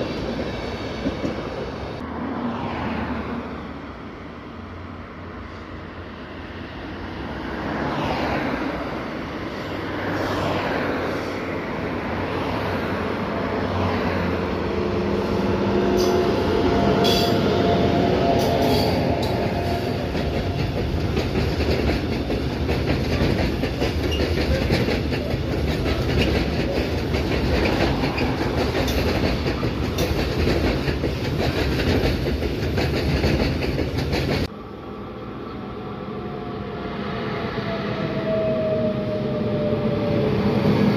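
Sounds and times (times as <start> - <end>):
train wheels rumbling: 7.7 - 34.7
wheels clacking over rail joints: 18.3 - 34.5.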